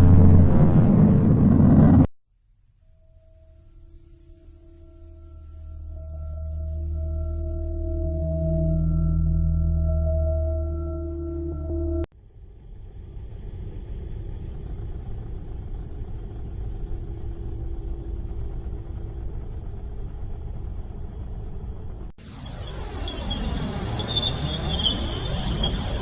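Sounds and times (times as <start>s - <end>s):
low rumbling drone: 0.0s - 2.1s, 2.8s - 26.0s
ringing bowl-like tone: 2.8s - 12.1s, 22.4s - 26.0s
bright sweeping pitches: 3.9s - 12.1s, 22.4s - 26.0s.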